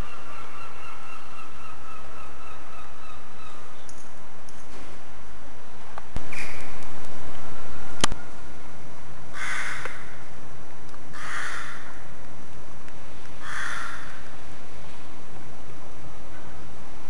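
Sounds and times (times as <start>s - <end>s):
bird harsh cawing: 9.3s - 10.2s, 11.1s - 12.1s, 13.4s - 14.3s.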